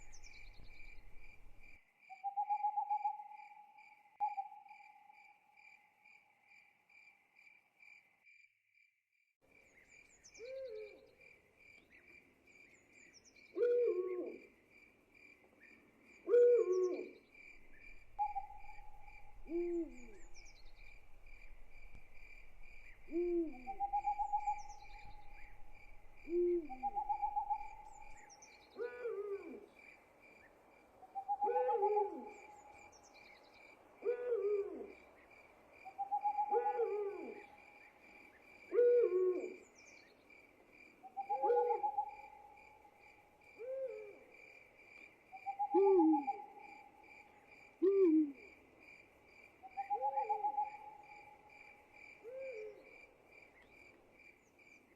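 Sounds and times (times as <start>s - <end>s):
crickets trilling: 0.0s - 1.8s, 17.5s - 28.3s
owl hooting: 13.6s - 14.4s, 16.3s - 22.2s, 22.8s - 28.2s, 28.8s - 29.6s, 31.2s - 32.7s, 34.0s - 35.0s, 35.9s - 37.6s, 38.7s - 39.6s, 41.1s - 42.5s, 43.6s - 44.2s, 45.4s - 46.8s, 47.8s - 48.5s, 49.7s - 51.4s, 52.2s - 52.8s.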